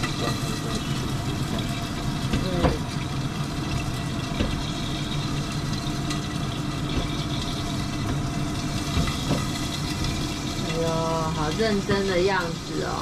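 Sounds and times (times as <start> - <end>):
chicken frying in oil: 0.0 - 13.0
low mechanical hum: 0.0 - 13.0.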